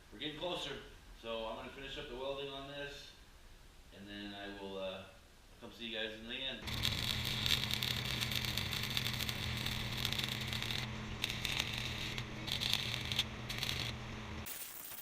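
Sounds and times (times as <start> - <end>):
low electrical hum: 0.0 - 15.0
welding arc crackling: 6.6 - 15.0.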